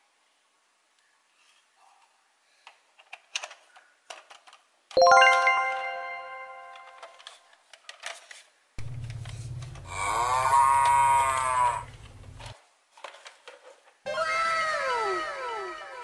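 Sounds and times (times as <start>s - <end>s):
plastic toy parts clicking: 2.6s - 4.7s, 6.7s - 10.0s, 12.4s - 13.9s
chime: 5.0s - 7.1s
cow mooing: 9.8s - 12.1s.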